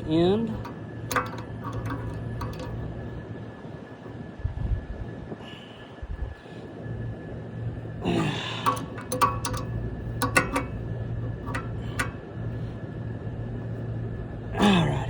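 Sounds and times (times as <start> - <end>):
low machinery hum: 0.0 - 15.0
hand tools clicking on metal: 0.6 - 2.8, 8.6 - 12.3.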